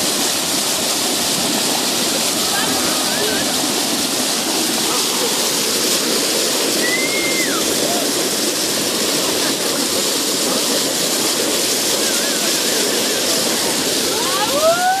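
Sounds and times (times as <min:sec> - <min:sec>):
seawater rushing: 0:00.0 - 0:15.0
faint whistles: 0:06.7 - 0:07.7.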